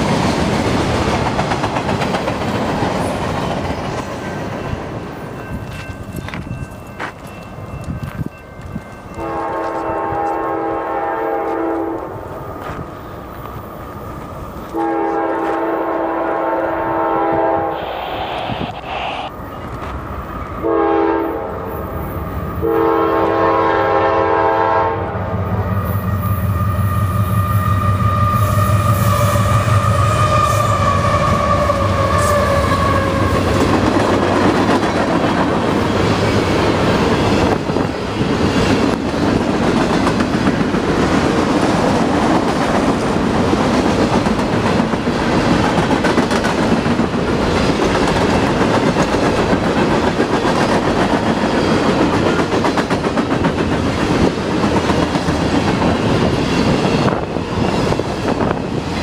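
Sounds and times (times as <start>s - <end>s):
train wheels clattering on rails: 0.0s - 10.5s, 28.0s - 59.0s
diesel locomotive rumble and whine: 0.0s - 59.0s
locomotive horn chord: 9.2s - 12.1s, 14.7s - 17.9s, 20.6s - 21.7s, 22.6s - 25.2s.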